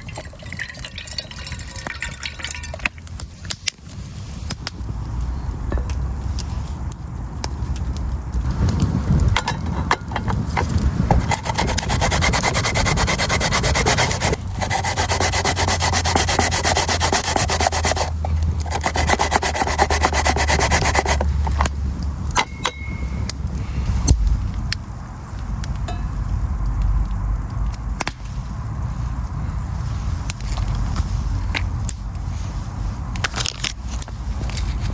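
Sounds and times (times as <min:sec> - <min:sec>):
fast rhythmic scraping: 0:09.6 - 0:21.6.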